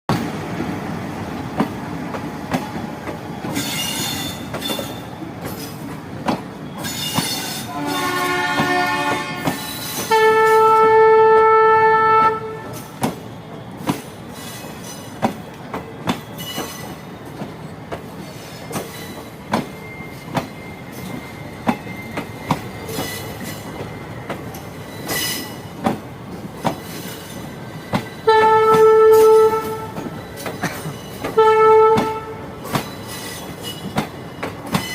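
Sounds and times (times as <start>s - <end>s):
train wheels clicking over rail joints: 0.1s - 10.3s, 12.6s - 34.9s
train horn: 7.7s - 12.9s, 28.2s - 30.1s, 31.3s - 32.6s.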